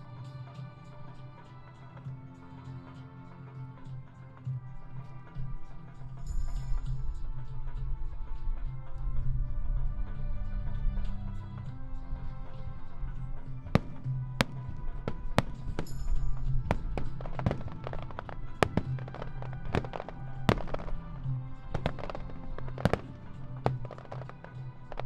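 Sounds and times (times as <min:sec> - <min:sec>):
music with pulsing low beat: 0:00.0 - 0:25.0
fireworks bangs and crackles: 0:13.5 - 0:25.0.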